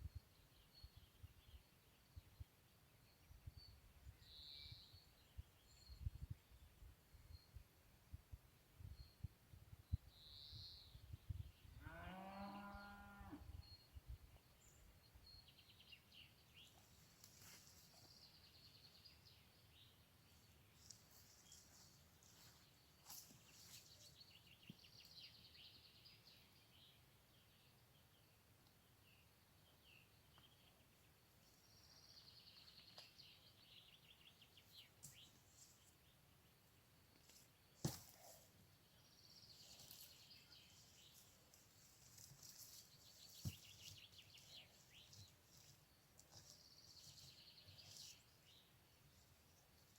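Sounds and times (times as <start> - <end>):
cow mooing: 11.8 - 13.4.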